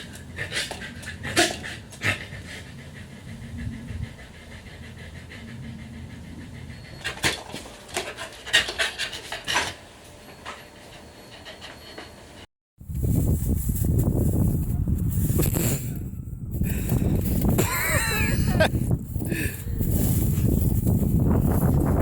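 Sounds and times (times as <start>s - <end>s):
dog panting: 0.0s - 9.8s, 10.8s - 12.5s.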